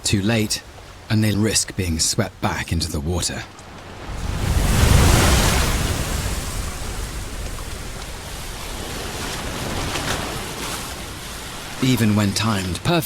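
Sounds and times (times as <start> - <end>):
surf crashing against rocks: 3.8 - 13.0.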